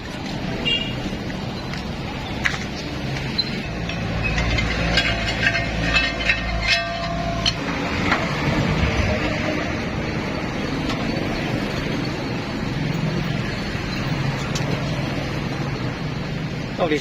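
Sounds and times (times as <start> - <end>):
sharp metallic ticks: 1.7 - 8.3.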